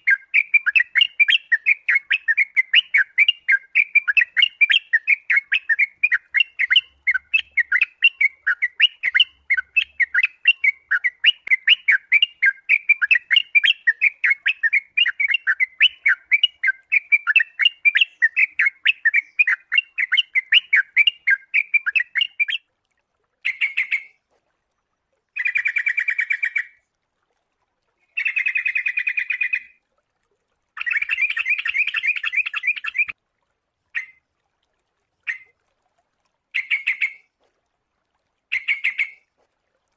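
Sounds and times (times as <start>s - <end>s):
bulbul calling repeated notes: 0.0s - 22.6s, 23.4s - 24.2s, 30.8s - 33.2s, 33.9s - 34.2s, 35.2s - 35.5s, 36.5s - 37.3s, 38.5s - 39.3s.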